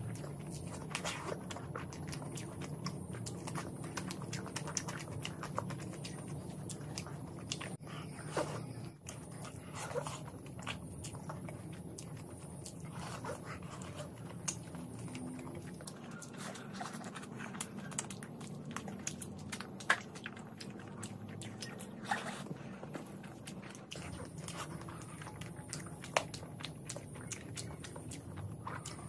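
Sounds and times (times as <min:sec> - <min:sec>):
wet chewing and lip-smacking: 0:00.0 - 0:29.0.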